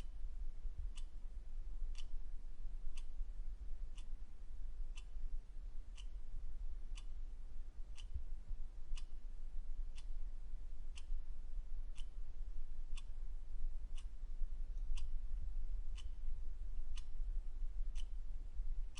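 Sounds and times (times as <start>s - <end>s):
low steady hum: 0.0s - 18.9s
clock ticking: 10.9s - 11.2s, 11.9s - 12.2s, 12.9s - 13.2s, 14.8s - 15.2s, 15.9s - 17.2s, 17.9s - 18.2s.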